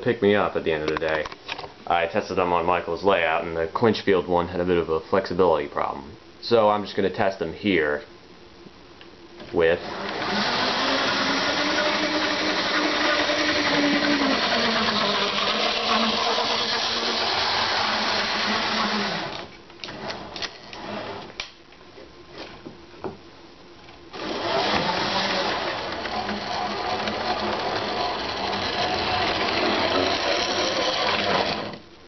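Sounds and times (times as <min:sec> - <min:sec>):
model train motor whirring: 0:10.0 - 0:21.1, 0:24.2 - 0:31.8.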